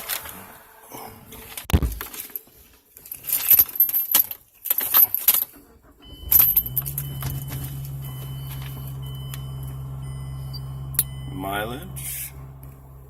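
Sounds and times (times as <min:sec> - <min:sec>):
thump: 0:01.7 - 0:02.1
car keys jangling: 0:02.1 - 0:11.2
high electronic tone: 0:06.2 - 0:13.0.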